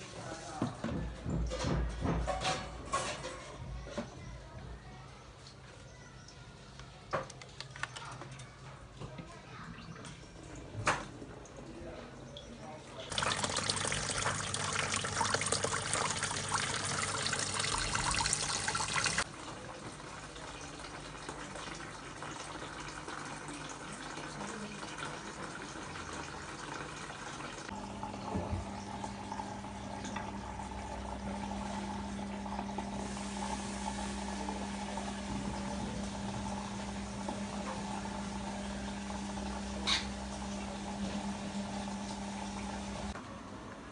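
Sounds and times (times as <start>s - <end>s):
water running: 13.0s - 43.2s
electrical appliance hum: 13.1s - 43.9s.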